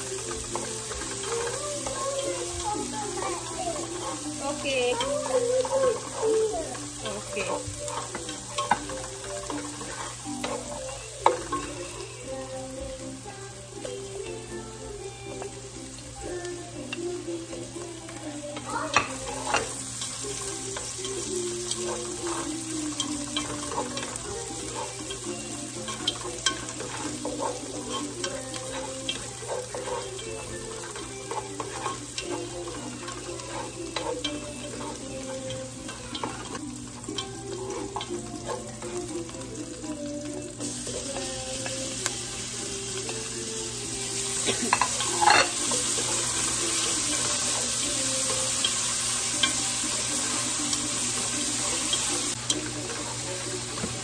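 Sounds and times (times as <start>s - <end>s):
onion and garlic sizzling in oil: 0.0s - 54.0s
wooden spoon scraping pot: 3.7s - 11.7s.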